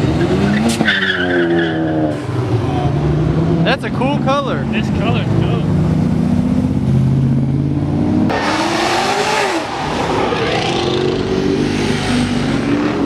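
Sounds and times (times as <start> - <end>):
car engine revving: 0.0 - 13.0
engines idling: 2.2 - 8.3.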